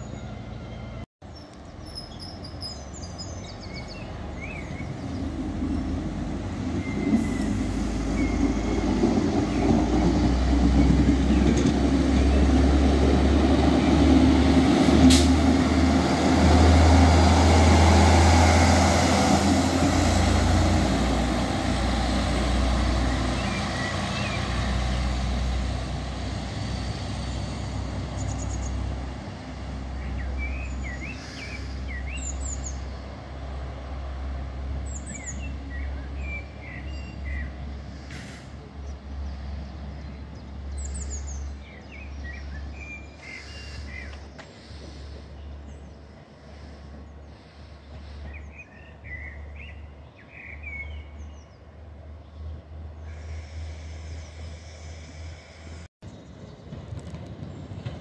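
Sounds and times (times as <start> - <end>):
birds chirping: 0.0 - 14.1, 38.7 - 56.8
train engine hum and rumble: 0.0 - 58.0.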